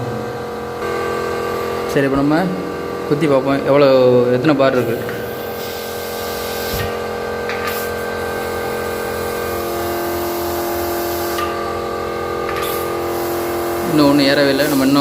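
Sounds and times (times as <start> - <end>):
steady mechanical hum: 0.0 - 15.0
compressed air hissing: 4.7 - 11.8, 12.5 - 15.0.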